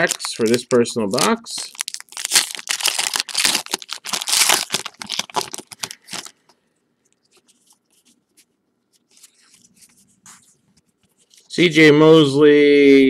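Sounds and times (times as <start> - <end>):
card pack wrapper crinkling and tearing: 0.0 - 6.5
cards rustling: 0.0 - 6.6, 7.2 - 11.5.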